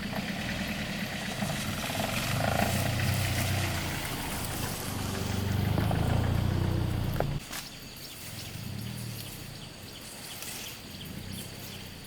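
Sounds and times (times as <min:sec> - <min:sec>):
engine droning: 0:00.0 - 0:07.4.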